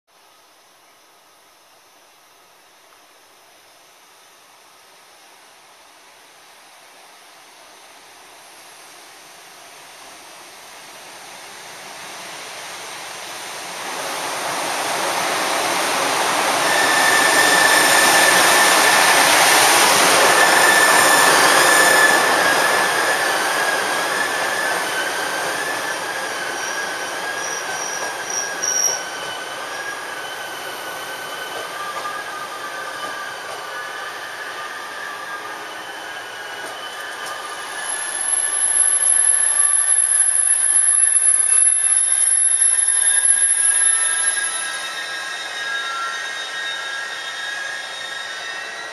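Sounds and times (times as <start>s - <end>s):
train rolling into station: 2.7s - 48.9s
high brake squeal: 16.4s - 48.9s.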